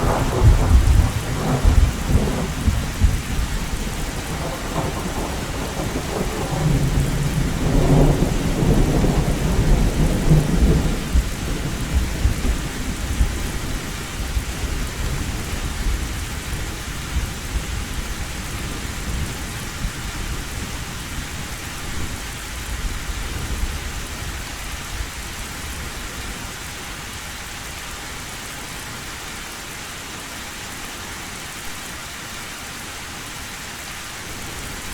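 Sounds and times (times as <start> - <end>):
thunder rumbling: 0.0 - 19.4
heavy rain on a tin roof: 0.0 - 34.9.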